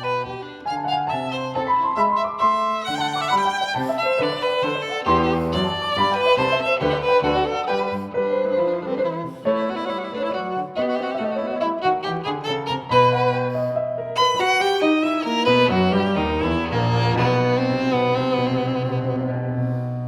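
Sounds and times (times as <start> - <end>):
violin melody: 0.0 - 20.0.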